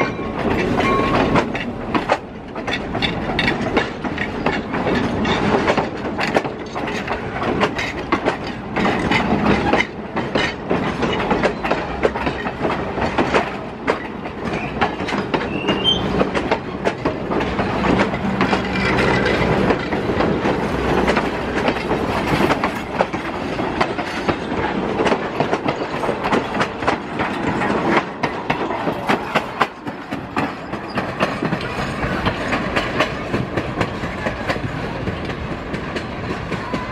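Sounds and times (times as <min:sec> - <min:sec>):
train wheels clicking over rail joints: 0:00.0 - 0:36.9.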